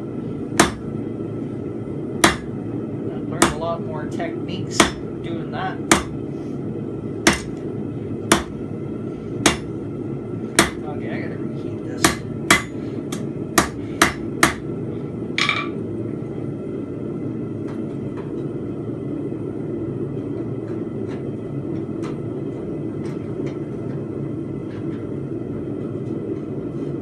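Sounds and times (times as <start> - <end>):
forge running: 0.0 - 27.0
hammer blows on anvil: 2.2 - 2.5, 4.7 - 5.1, 5.9 - 6.2, 7.3 - 7.6, 9.4 - 9.7, 10.6 - 10.8, 12.0 - 14.6.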